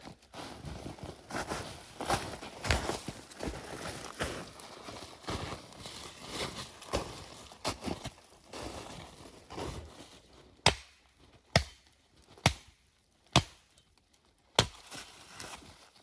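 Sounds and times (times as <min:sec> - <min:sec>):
chopping into wood: 0:10.6 - 0:13.7, 0:14.6 - 0:14.8.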